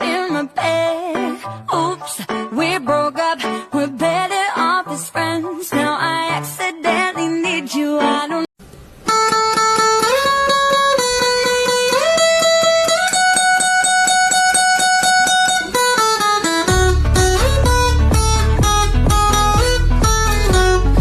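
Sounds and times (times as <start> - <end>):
plucked guitar picking: 9.1 - 21.0
heavy bass beat: 16.7 - 21.0.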